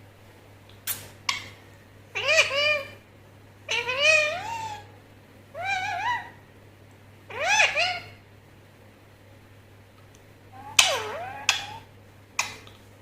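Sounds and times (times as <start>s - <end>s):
parrot meow-like calls: 2.2s - 3.0s, 3.7s - 4.9s, 5.5s - 6.4s, 7.3s - 8.2s, 10.5s - 12.0s.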